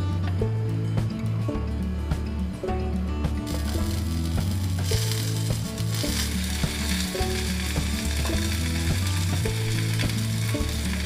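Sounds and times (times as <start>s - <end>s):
background music with bass line: 0.0s - 11.0s
chicken sizzling in a clay pot: 3.4s - 11.0s
sauce bubbling: 3.5s - 11.0s.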